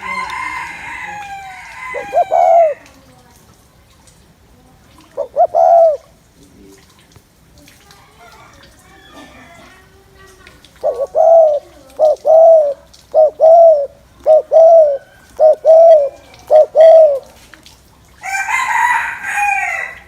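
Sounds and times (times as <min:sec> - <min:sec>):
dove cooing: 0:00.0 - 0:03.1, 0:05.0 - 0:06.2, 0:10.7 - 0:17.4.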